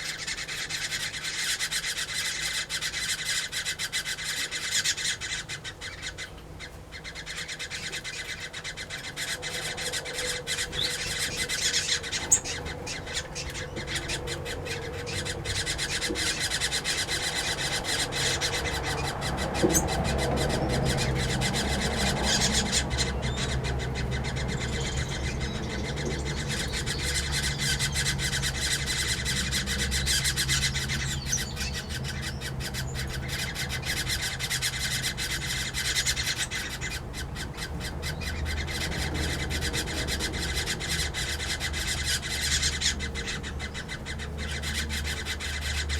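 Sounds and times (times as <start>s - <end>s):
birds chattering and squawking: 0.0s - 45.9s.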